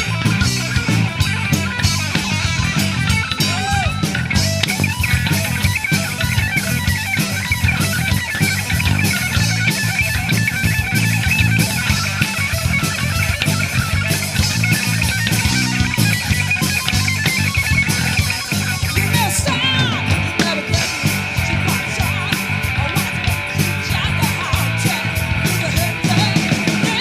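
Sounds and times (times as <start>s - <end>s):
bass guitar: 0.0s - 27.0s
drum kit: 0.0s - 27.0s
electric guitar: 0.0s - 27.0s.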